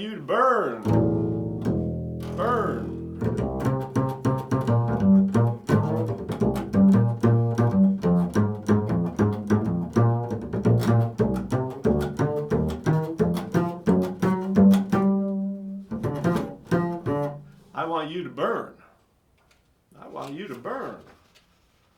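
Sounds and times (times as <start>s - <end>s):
low plucked string instrument: 0.8s - 17.6s.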